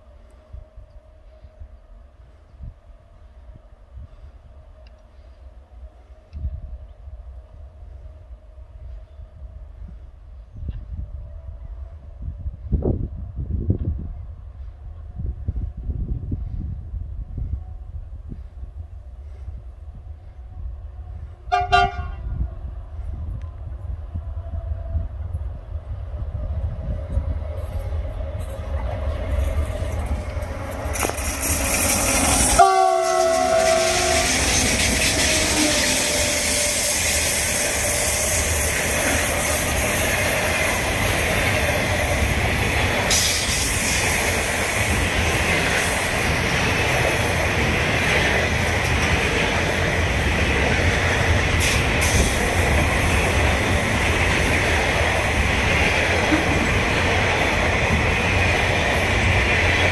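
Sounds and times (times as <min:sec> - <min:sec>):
locomotive horn blast: 0:21.5 - 0:22.4, 0:32.1 - 0:38.2
wagons rolling on rails: 0:28.5 - 0:59.9.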